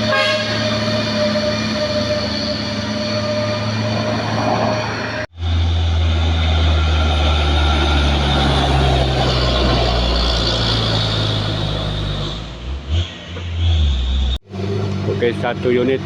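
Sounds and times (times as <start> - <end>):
truck diesel engine labouring: 0.0 - 16.0.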